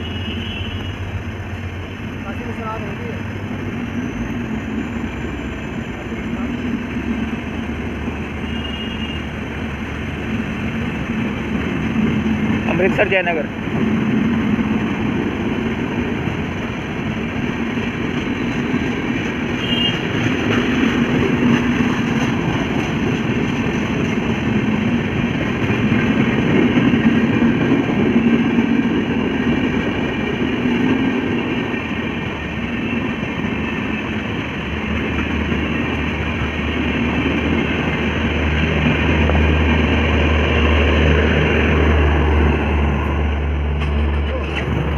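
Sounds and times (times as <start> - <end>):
train rumbling on rails: 0.0 - 44.9.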